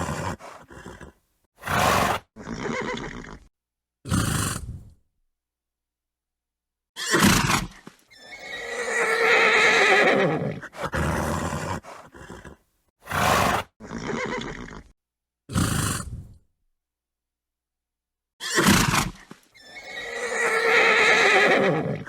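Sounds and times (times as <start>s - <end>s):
horse neighing: 0.0s - 3.5s, 8.1s - 14.9s, 18.4s - 22.0s.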